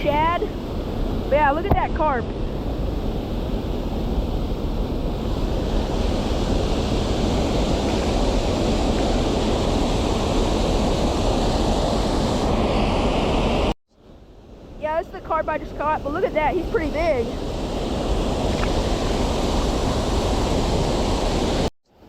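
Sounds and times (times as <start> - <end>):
wind buffeting microphone: 0.0 - 13.7, 14.5 - 21.7
river water rushing: 16.8 - 21.7.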